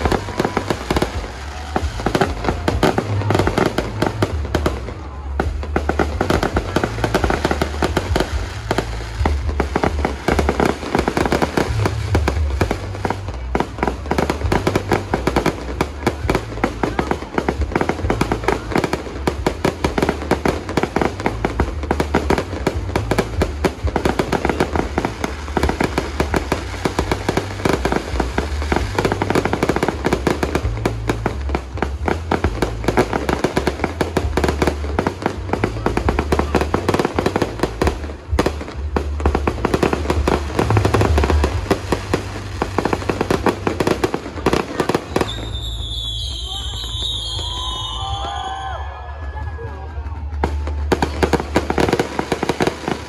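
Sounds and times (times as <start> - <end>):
deep rumble: 0.0 - 44.5
fireworks bangs and crackles: 0.0 - 53.0.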